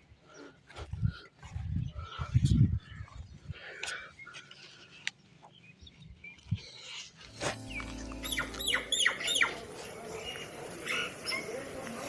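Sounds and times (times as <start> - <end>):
bird chirps sweeping downward: 7.3 - 9.7.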